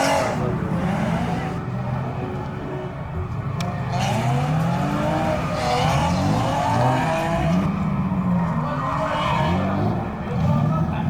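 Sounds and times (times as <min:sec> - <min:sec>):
car engine revving hard: 0:00.0 - 0:02.0, 0:03.8 - 0:07.8.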